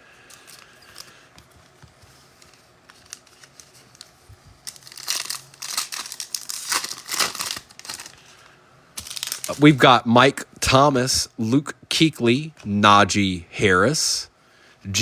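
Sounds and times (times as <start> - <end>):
wrapper being torn open: 2.8 - 8.2, 9.0 - 9.8.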